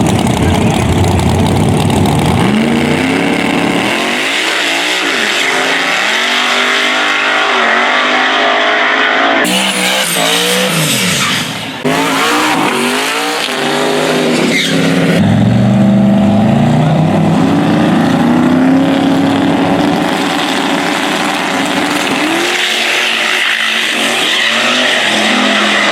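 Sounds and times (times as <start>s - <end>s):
racing car engines revving: 0.0s - 25.9s.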